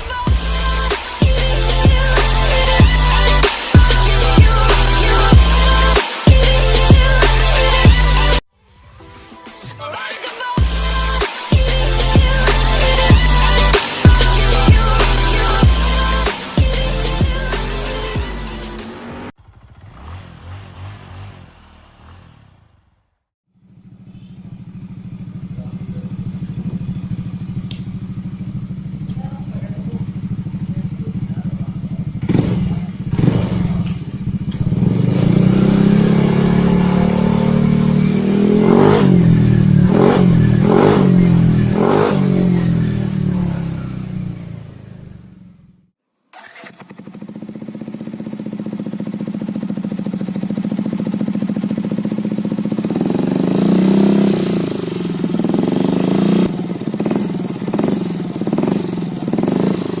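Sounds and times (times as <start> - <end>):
scooter engine revving: 11.5 - 60.0
exhaust cracks: 18.8 - 26.6.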